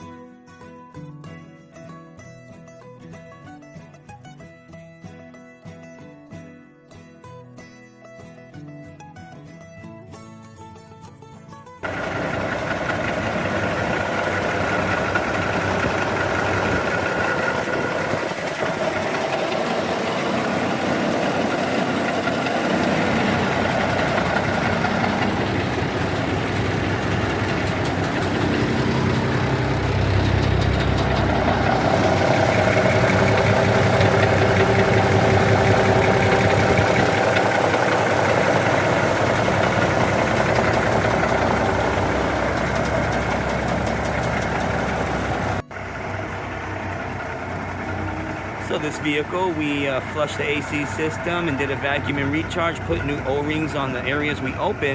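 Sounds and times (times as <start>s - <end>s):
diesel truck engine idling: 11.8s - 54.9s.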